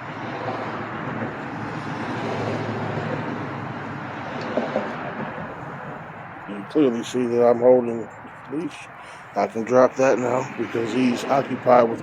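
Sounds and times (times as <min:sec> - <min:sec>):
road vehicle passing: 0:00.0 - 0:12.0.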